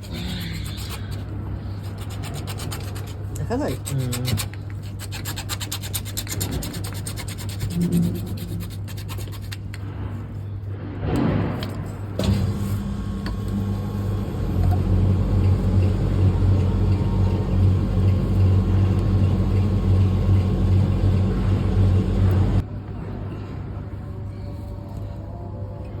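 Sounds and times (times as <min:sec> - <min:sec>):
machine low electric hum: 0:11.8 - 0:26.0.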